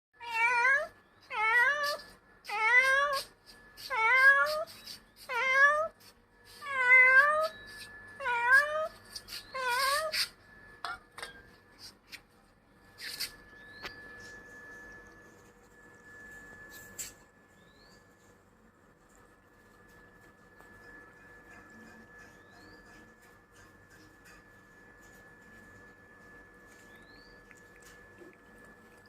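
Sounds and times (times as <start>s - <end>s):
cat meowing: 0.2s - 6.0s.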